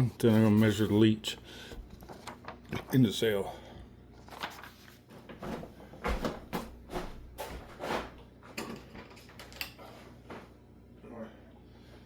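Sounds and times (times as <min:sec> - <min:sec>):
rustling knocks and scrapes: 0:04.3 - 0:09.3.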